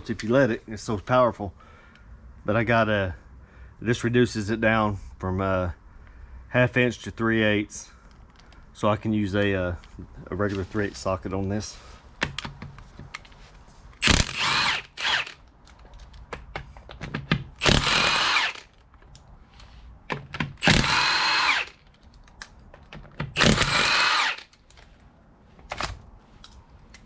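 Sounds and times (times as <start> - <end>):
power drill motor whine: 14.0 - 15.4, 17.6 - 18.7, 20.6 - 21.8, 23.4 - 24.5.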